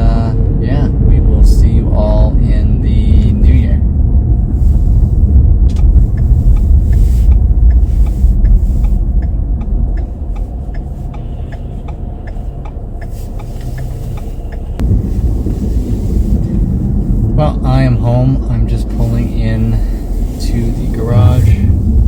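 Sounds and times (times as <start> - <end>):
engine and tyre rumble in car: 0.0 - 22.0
light regular ticking: 3.4 - 17.9.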